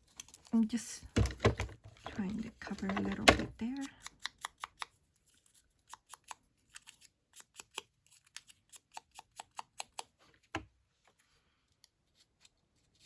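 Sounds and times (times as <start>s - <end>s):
scissors snipping paper: 2.8s - 10.2s.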